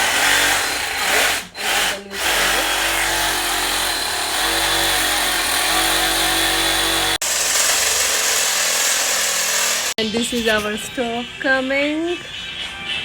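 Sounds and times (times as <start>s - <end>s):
power tool cutting marble: 0.0s - 10.0s.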